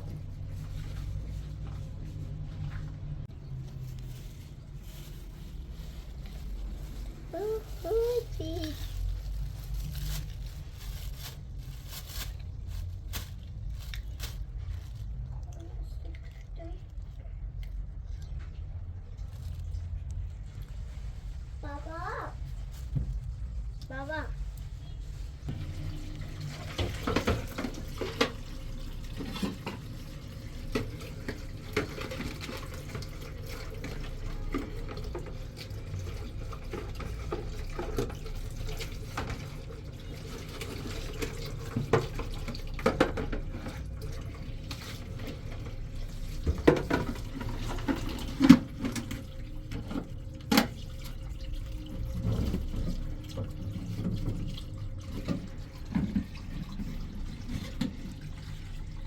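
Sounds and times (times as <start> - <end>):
tap water running into sink: 25.5 - 59.0.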